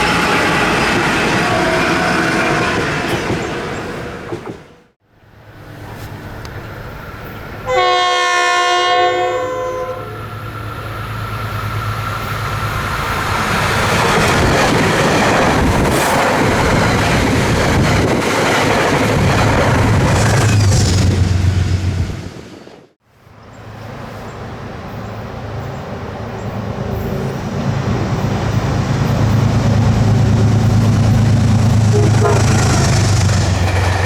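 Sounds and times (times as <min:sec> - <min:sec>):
train rumbling past on rails: 0:00.0 - 0:34.0
train horn blast: 0:07.6 - 0:10.4, 0:31.8 - 0:33.3.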